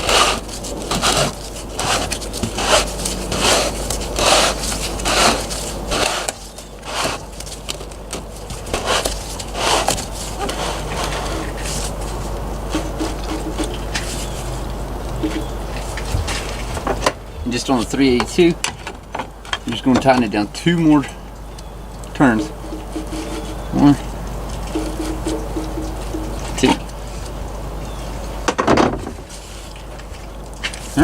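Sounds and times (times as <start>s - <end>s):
plastic and metal parts scraping: 0.0s - 14.6s, 22.2s - 27.4s.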